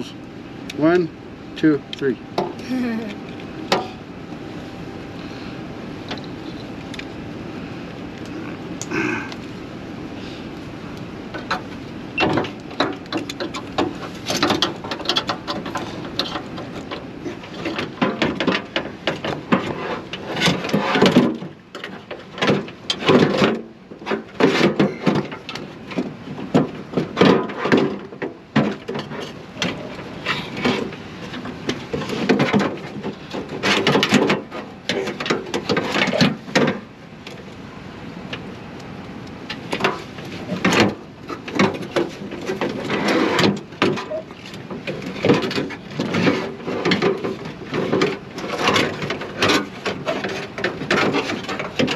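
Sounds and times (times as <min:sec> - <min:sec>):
metal clanks and rattles: 0:11.3 - 0:37.4, 0:39.5 - 0:51.9.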